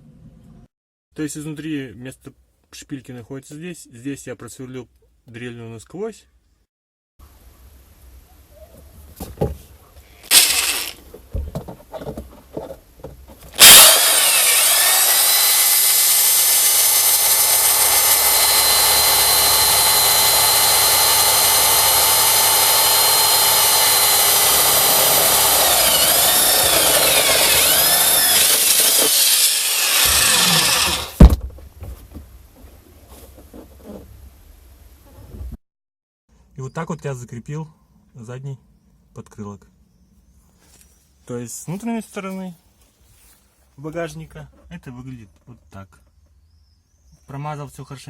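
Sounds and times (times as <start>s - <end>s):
electric drill boring sheet metal: 10.3s - 11.0s, 13.6s - 31.2s.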